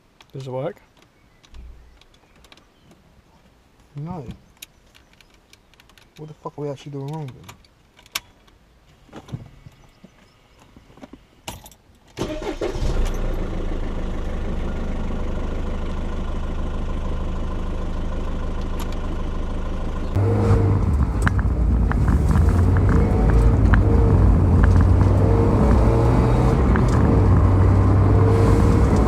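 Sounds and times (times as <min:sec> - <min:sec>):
car engine cranking and starting: 0:12.2 - 0:29.0
car engine idling: 0:12.3 - 0:29.0.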